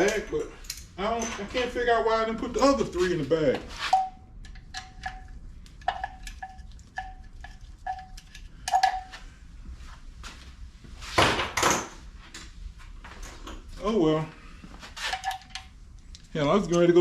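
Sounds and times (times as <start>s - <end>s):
bolts clinking against metal: 3.9s - 7.2s, 7.9s - 9.2s, 15.0s - 15.7s.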